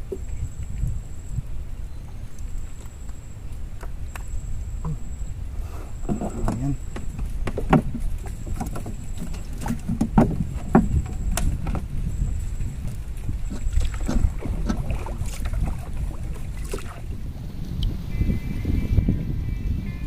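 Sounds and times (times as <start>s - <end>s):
wind rumble on microphone: 0.0s - 20.0s
paddle stroking through water: 2.0s - 18.1s.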